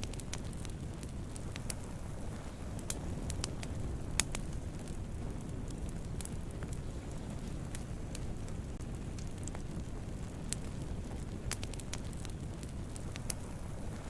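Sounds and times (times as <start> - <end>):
campfire crackling and popping: 0.0 - 14.0
low rumble of flames: 0.0 - 14.0.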